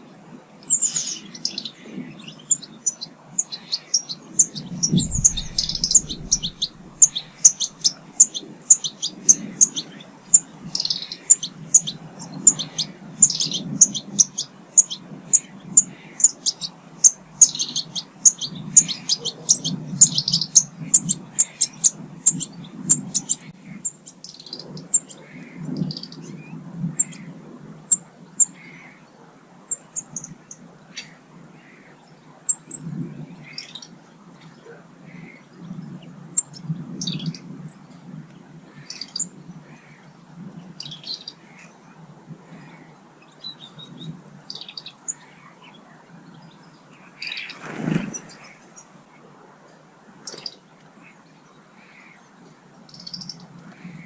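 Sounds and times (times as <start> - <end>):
small birds chirping: 0.6 - 27.3, 38.7 - 49.0, 50.2 - 54.0
low background rumble: 4.4 - 8.2.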